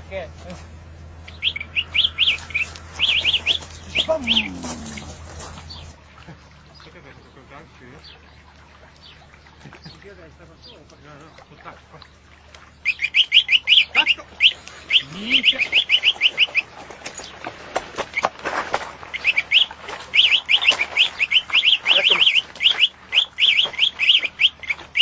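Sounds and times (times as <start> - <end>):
songbird chirping: 0.0 - 17.4, 19.1 - 25.0
rustling: 2.1 - 6.0.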